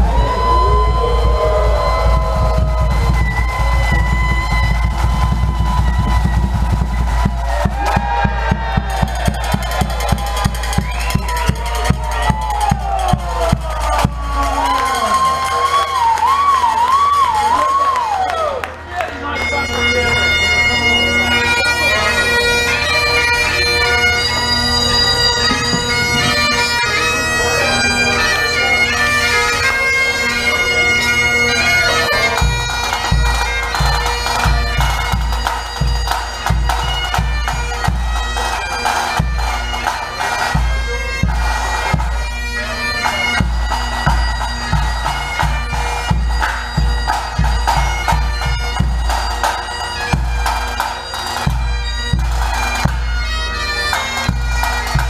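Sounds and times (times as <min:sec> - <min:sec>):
drum beat: 0:00.0 - 0:15.2, 0:43.4 - 0:49.5
bagpipe melody with drones: 0:00.0 - 0:17.8, 0:18.9 - 0:55.0.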